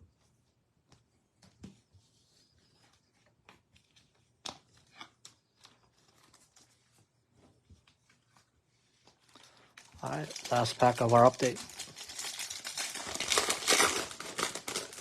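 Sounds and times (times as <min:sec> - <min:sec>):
cards and wrappers rustling: 0:02.8 - 0:07.1, 0:07.8 - 0:15.0.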